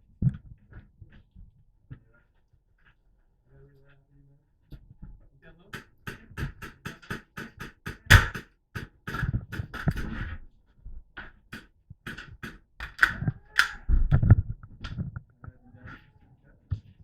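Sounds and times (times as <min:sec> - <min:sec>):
airsoft guns firing: 0:05.8 - 0:10.2, 0:12.1 - 0:13.8
cracks and clatter: 0:05.8 - 0:10.4, 0:11.2 - 0:15.3.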